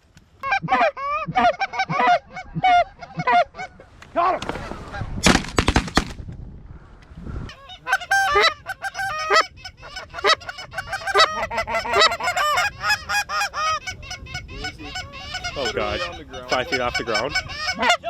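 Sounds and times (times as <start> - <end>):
geese honking: 7.7 - 14.0, 15.4 - 18.0.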